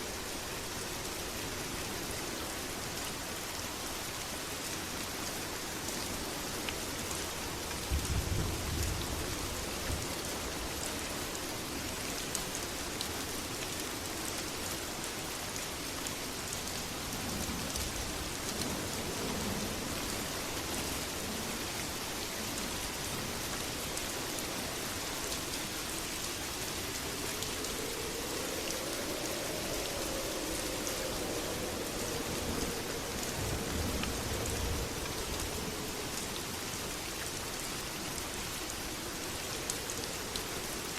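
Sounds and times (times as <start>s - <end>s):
heavy rain: 0.0s - 40.9s
thunder rumble: 24.5s - 36.7s.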